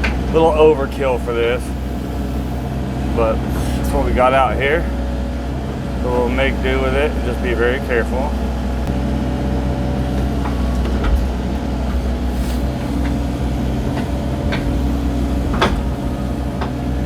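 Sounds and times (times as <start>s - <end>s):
excavator diesel engine running: 0.0s - 17.0s
short knocks: 10.2s - 17.0s.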